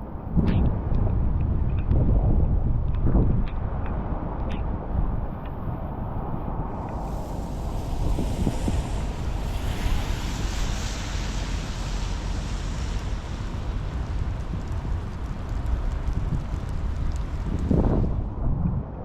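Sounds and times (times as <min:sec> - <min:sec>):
wind buffeting microphone: 0:00.0 - 0:19.0
rain hiss: 0:06.6 - 0:18.3.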